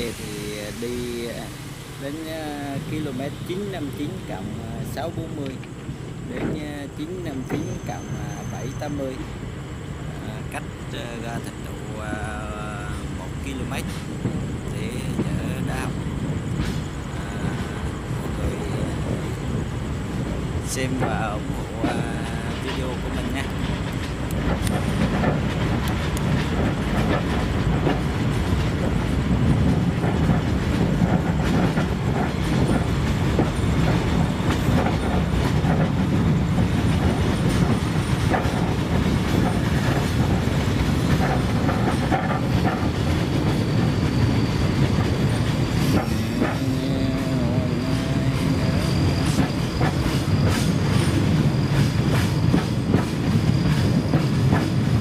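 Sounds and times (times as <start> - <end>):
high wheel squeal: 0.0 - 9.4, 20.7 - 27.6, 28.2 - 55.0
train rumbling on rails: 0.0 - 55.0
wheels clicking over rail joints: 2.8 - 9.2, 18.8 - 55.0.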